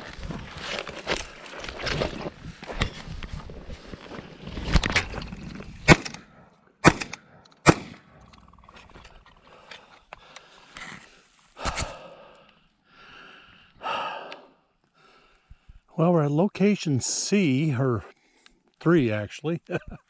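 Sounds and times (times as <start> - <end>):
footsteps crunching on ground: 0.0 - 5.9
heavy breathing: 8.1 - 15.9.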